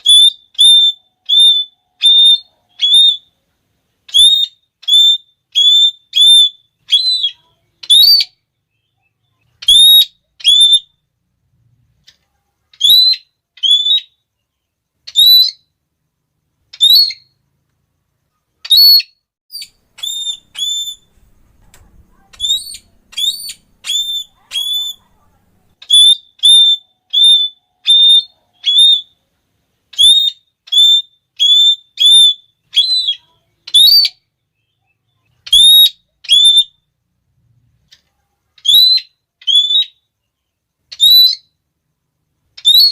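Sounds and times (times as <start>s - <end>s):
parrot shrill calls: 0.0s - 3.3s, 4.1s - 8.4s, 9.6s - 11.0s, 12.7s - 14.2s, 15.1s - 15.7s, 16.7s - 17.4s, 18.6s - 29.2s, 29.9s - 34.3s, 35.4s - 36.8s, 38.6s - 40.0s, 40.9s - 41.6s, 42.6s - 42.9s.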